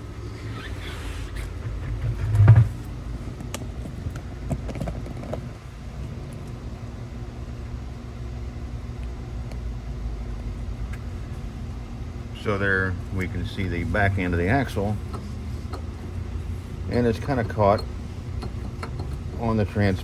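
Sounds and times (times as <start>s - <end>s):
shop background hum: 0.0s - 20.0s
light metal knocks and clicks: 16.9s - 19.3s.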